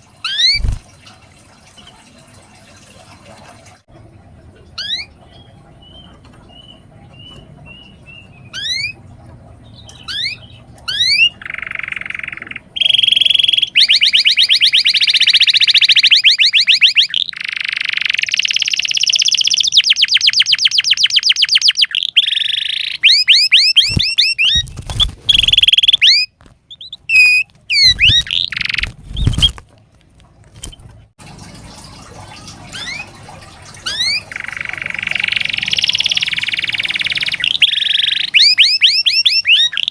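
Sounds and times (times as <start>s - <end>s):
canary singing trills: 0.2s - 0.8s, 4.8s - 29.5s, 32.7s - 33.2s, 33.8s - 39.9s.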